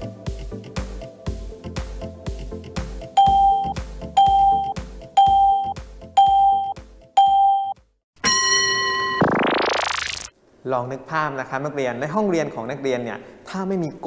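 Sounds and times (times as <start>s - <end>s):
loud timer beeps: 3.2s - 10.3s.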